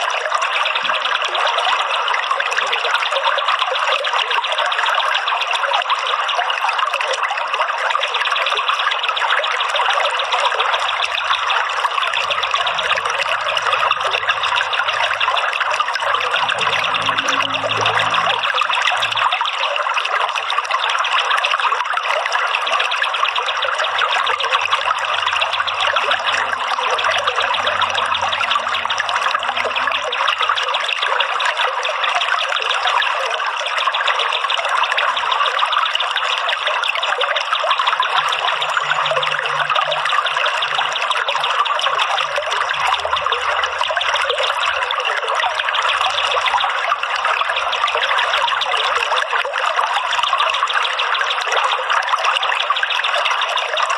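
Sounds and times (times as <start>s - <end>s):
water trickling: 0.0s - 53.9s.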